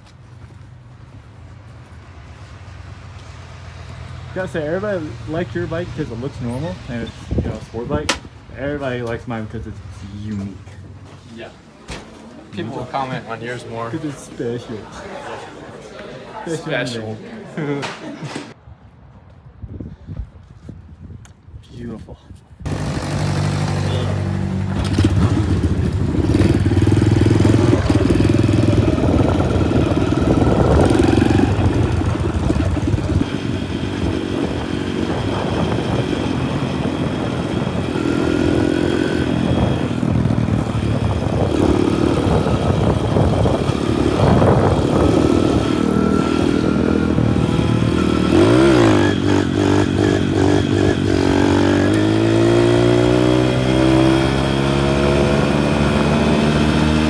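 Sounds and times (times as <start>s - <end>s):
clatter and rushing noise: 22.6s - 57.0s
small motorbike engine running: 22.7s - 57.0s.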